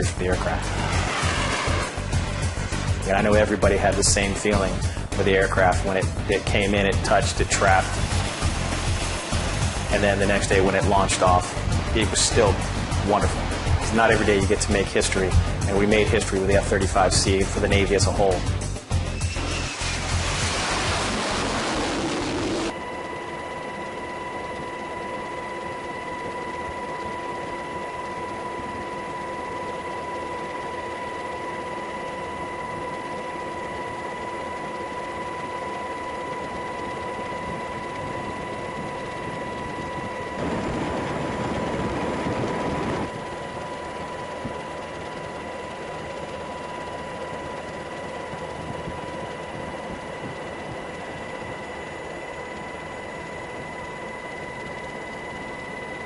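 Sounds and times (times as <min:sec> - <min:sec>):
machine hum with high whine: 0:00.0 - 0:56.0
rush of noise: 0:00.5 - 0:03.1, 0:19.3 - 0:22.7.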